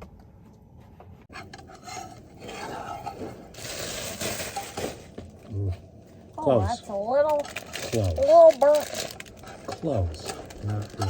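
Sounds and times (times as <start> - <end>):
spatula scraping a frying pan: 1.3 - 5.1.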